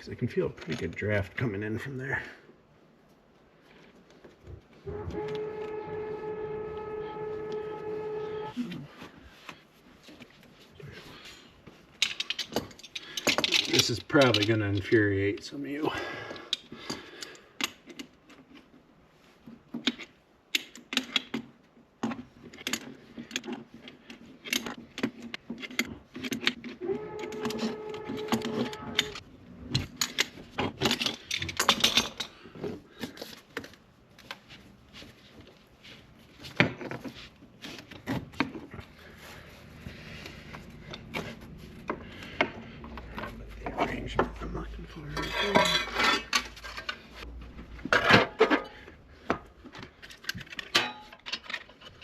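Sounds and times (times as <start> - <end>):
ceramic and metal pieces clinking: 45.0 - 47.0.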